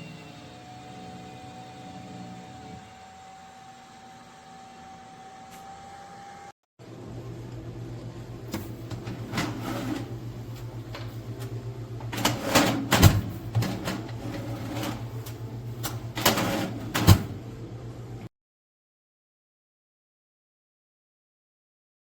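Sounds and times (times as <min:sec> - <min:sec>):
air fryer humming: 0:00.0 - 0:18.3.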